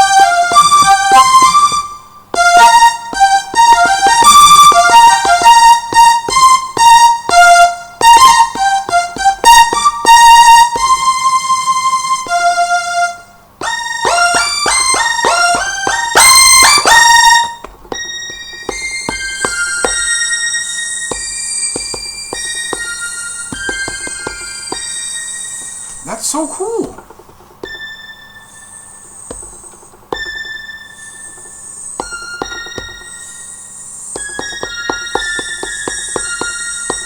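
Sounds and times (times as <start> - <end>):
bell-like keyboard melody: 0.0 - 26.2, 27.6 - 37.0
pad taps on controller: 13.6 - 20.2, 21.1 - 25.0, 26.8 - 27.9, 29.0 - 30.6, 31.3 - 33.2, 34.2 - 37.0.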